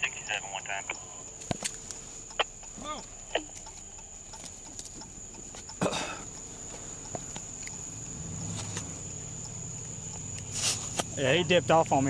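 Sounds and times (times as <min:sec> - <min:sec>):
low steady hum: 0:00.0 - 0:11.9
small knocks and thud: 0:01.4 - 0:01.8
footsteps: 0:06.4 - 0:07.8.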